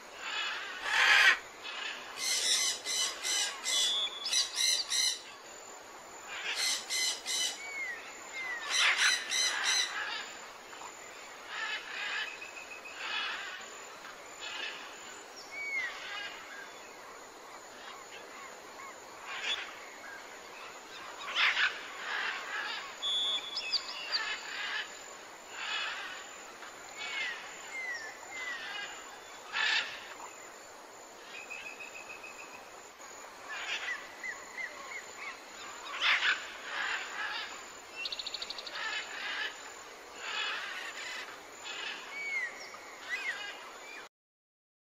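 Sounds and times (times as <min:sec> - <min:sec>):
faint steady hiss: 0:00.0 - 0:44.1
birds chirping and whistling: 0:02.2 - 0:05.2, 0:23.0 - 0:24.4.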